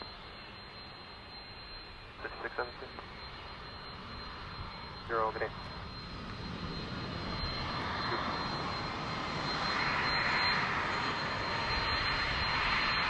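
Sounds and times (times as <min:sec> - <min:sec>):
jet engines rushing: 0:00.0 - 0:13.0
thin high whine: 0:00.0 - 0:13.0.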